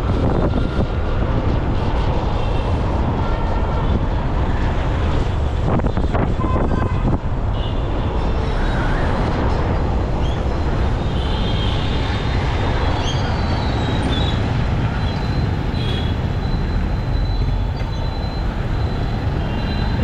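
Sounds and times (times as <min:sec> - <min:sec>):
wind and road noise rumble: 0:00.0 - 0:20.0
traffic horns beeping: 0:06.3 - 0:08.0, 0:15.0 - 0:20.0.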